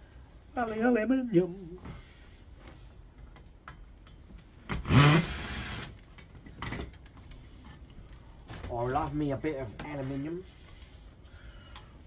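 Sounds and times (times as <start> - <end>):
cordless drill whining: 4.8 - 6.0.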